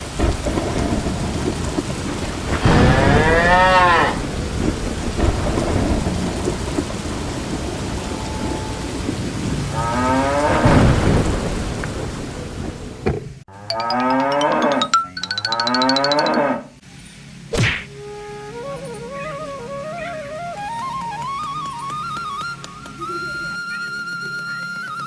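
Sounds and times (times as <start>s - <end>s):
rain falling: 0.0s - 13.5s, 17.2s - 25.0s
cow mooing: 2.7s - 4.2s, 13.6s - 16.6s.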